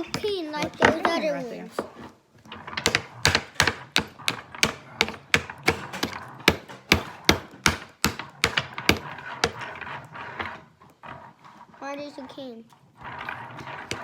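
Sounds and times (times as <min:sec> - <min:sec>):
hammer striking nail into wood: 0:02.8 - 0:09.6.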